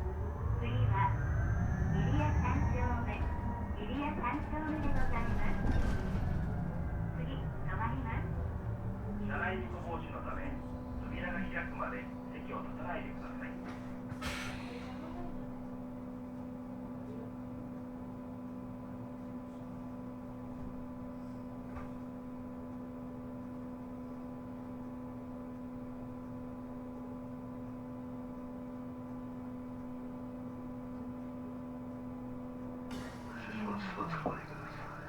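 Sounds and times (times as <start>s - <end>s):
low rumble: 0.0s - 13.5s
electric bus hum: 0.0s - 35.0s.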